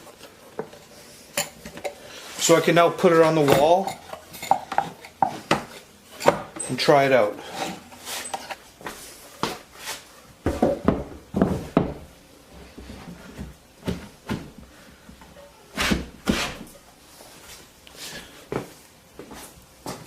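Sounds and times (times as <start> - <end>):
wooden knocks and clunks: 10.4 - 12.1.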